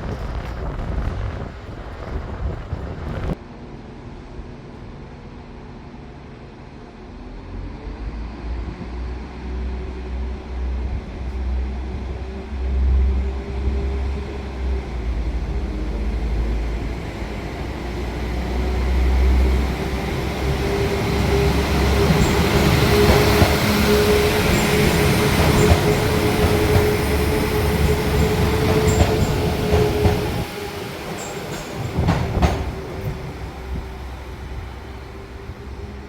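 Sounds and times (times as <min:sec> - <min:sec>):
train engine rumble: 0:00.0 - 0:36.0.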